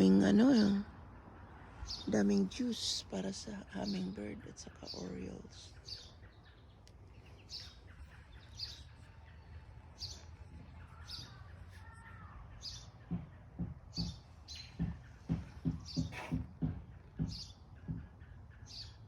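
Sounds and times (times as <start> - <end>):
soft warbling birdsong: 0.0 - 19.0
songbirds chirping: 0.0 - 19.0
low thuds: 12.6 - 18.2.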